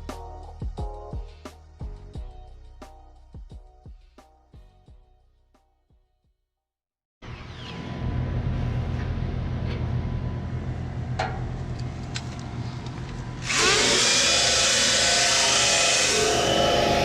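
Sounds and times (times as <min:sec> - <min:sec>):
high-speed tool whining: 0:13.3 - 0:17.0
power tool motor hum: 0:13.4 - 0:17.0.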